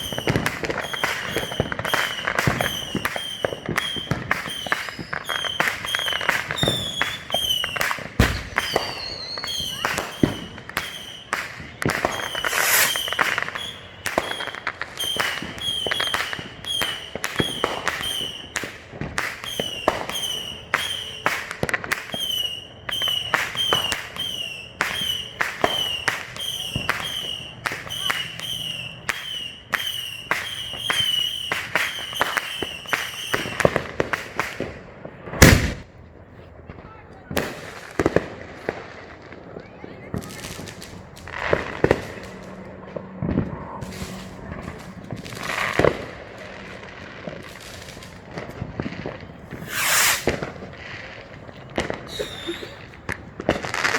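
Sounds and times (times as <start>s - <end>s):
fireworks bangs and crackles: 0.0s - 53.9s
short high chirp: 49.6s - 50.3s.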